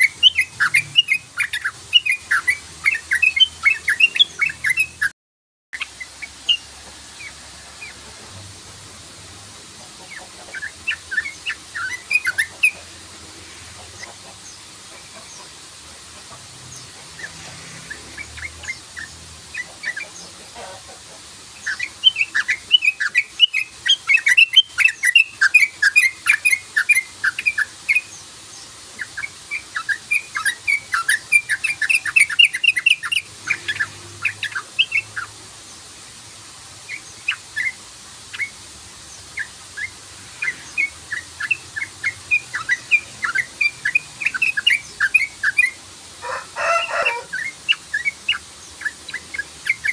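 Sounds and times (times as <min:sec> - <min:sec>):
bird chattering chirps: 0:00.0 - 0:05.1, 0:10.0 - 0:13.0, 0:16.2 - 0:20.9, 0:21.5 - 0:35.4, 0:36.9 - 0:49.9.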